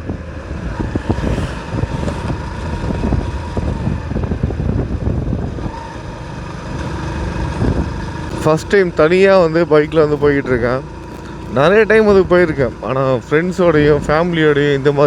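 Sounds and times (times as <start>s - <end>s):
wind on microphone: 0.0s - 6.1s, 6.8s - 8.2s
motorcycle engine running: 0.0s - 15.0s.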